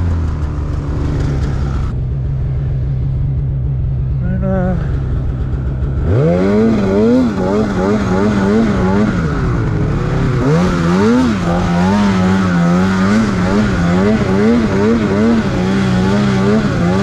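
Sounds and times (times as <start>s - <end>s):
snowmobile engine revving: 4.4s - 17.0s.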